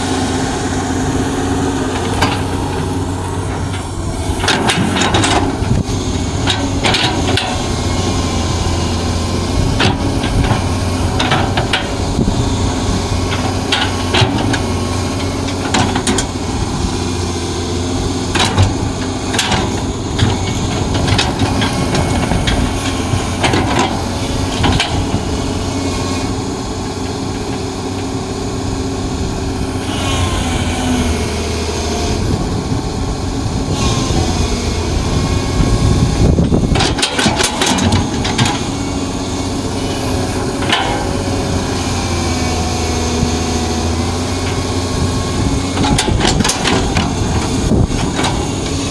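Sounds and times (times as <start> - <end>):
excavator diesel engine: 0.0 - 48.9
sharp knocks and clanks: 36.5 - 38.8.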